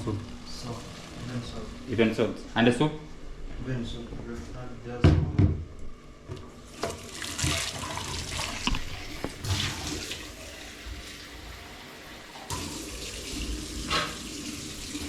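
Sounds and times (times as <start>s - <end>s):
water running and splashing: 6.7s - 15.0s.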